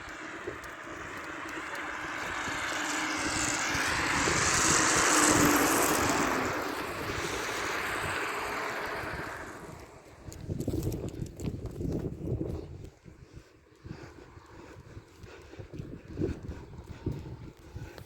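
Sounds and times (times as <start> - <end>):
vehicle passing by: 0.0 - 11.0.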